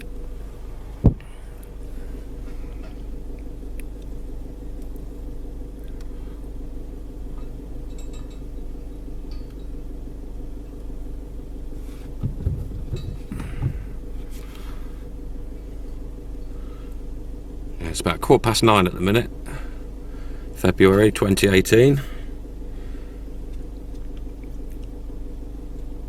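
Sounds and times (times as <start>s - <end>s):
low thumps: 0.0s - 3.6s, 12.1s - 14.3s
car engine idling: 0.0s - 26.0s.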